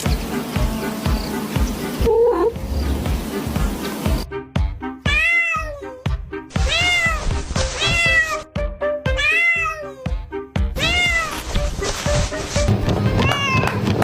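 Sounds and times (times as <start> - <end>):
background music with beat: 0.0 - 5.2
cat meowing: 5.0 - 8.5, 9.1 - 10.1, 10.8 - 11.6, 13.1 - 13.9.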